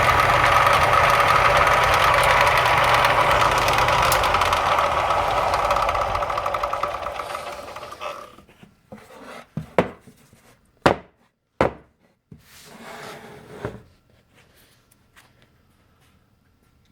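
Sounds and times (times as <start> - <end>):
electric sander running: 0.0 - 8.4.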